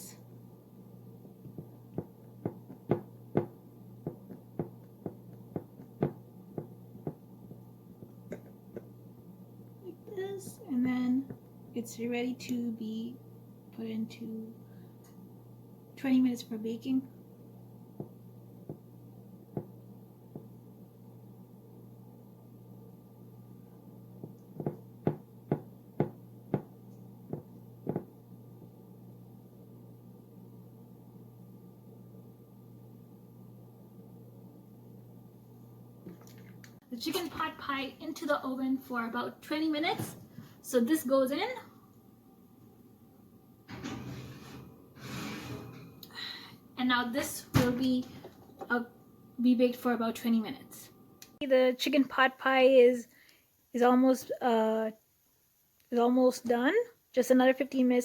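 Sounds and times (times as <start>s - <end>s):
steady low hum: 0.0s - 51.6s
light knocks and taps: 24.2s - 26.7s, 27.3s - 28.1s.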